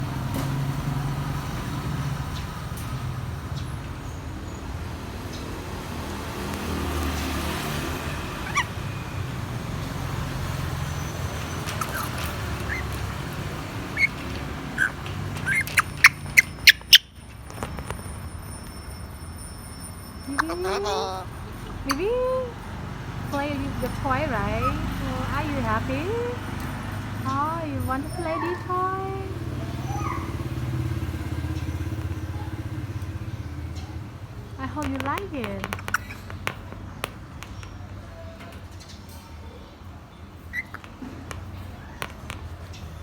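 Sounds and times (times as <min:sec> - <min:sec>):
parrot chirping: 0:07.9 - 0:17.3, 0:20.2 - 0:26.4, 0:27.4 - 0:30.4, 0:35.7 - 0:36.3, 0:40.4 - 0:41.0.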